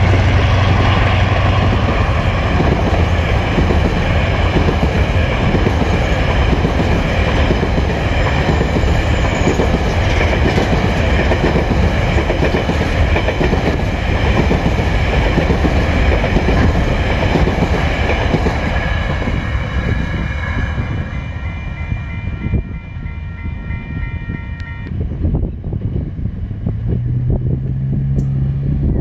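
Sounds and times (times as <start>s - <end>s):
train wagons rumbling over rail joints: 0.0s - 22.6s
level crossing warning bell: 20.8s - 24.9s.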